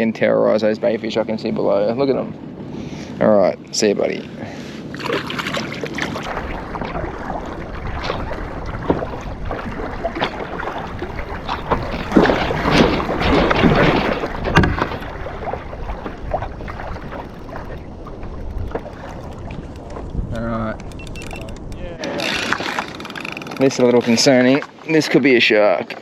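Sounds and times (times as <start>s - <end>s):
water splashing around kayak: 4.0s - 26.0s
wind on microphone: 4.8s - 24.2s
knock against hull: 11.6s - 15.0s.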